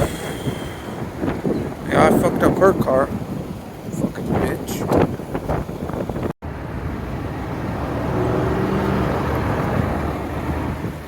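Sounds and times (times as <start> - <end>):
vehicle passing by: 6.5 - 11.0.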